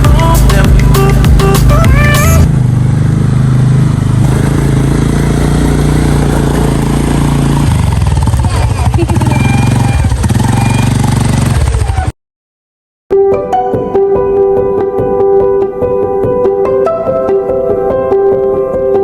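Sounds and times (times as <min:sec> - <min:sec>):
atv engine running: 0:00.0 - 0:12.1.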